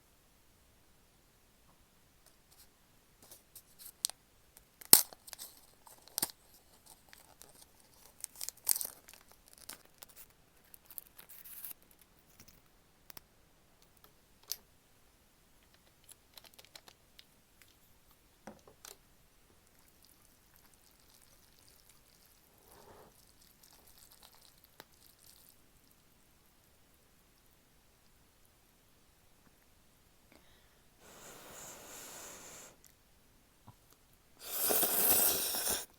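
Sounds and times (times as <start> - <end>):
crinkling: 2.5 - 12.7, 15.6 - 17.8.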